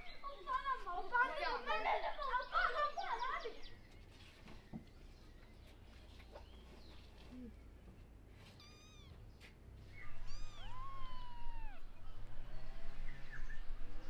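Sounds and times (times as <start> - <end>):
kittens mewing: 8.6 - 9.2, 10.1 - 12.1.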